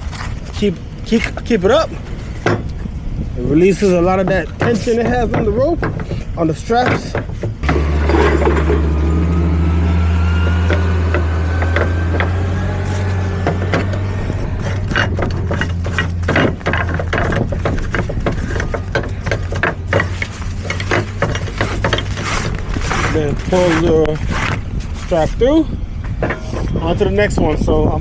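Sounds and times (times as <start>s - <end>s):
truck engine humming: 6.0s - 26.8s
strap winch clicking and knocking: 10.4s - 23.9s.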